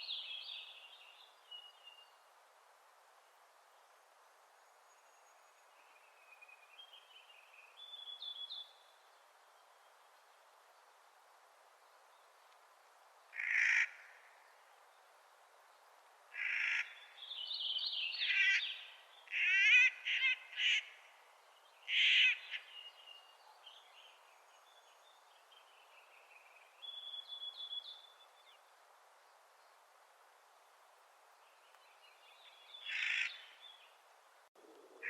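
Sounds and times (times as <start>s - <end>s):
bird giving harsh grating calls: 19.3s - 20.9s.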